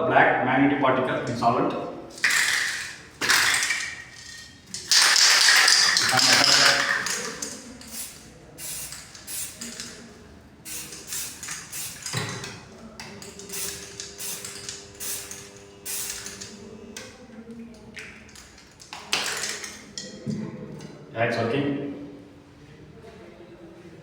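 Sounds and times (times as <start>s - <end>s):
aerosol can spraying: 2.1s - 10.0s, 10.7s - 16.6s, 18.1s - 19.8s.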